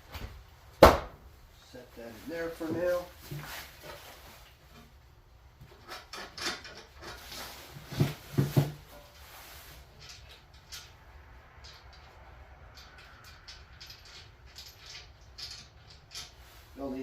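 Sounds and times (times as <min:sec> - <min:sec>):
knocks and clunks of handling: 0:05.6 - 0:16.6.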